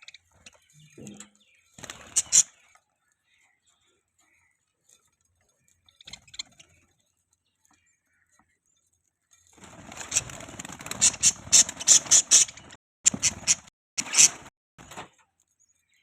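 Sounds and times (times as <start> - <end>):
budgies chattering: 0.0 - 4.6, 5.6 - 7.0, 10.0 - 14.4.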